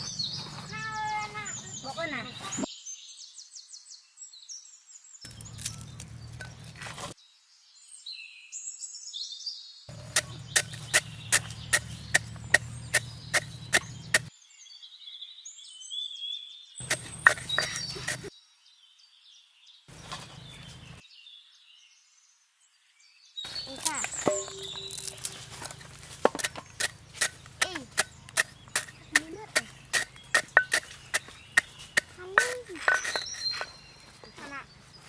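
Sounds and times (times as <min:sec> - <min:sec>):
birds chirping: 0:00.0 - 0:02.7, 0:05.3 - 0:07.1, 0:09.9 - 0:14.3, 0:16.8 - 0:18.3, 0:23.4 - 0:35.0
sharp knocks: 0:23.8 - 0:33.6.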